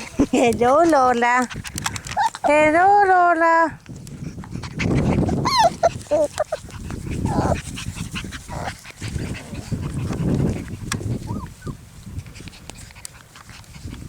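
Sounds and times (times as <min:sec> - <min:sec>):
puppies yipping and whining: 0:02.1 - 0:02.6, 0:05.2 - 0:08.8, 0:11.1 - 0:11.8.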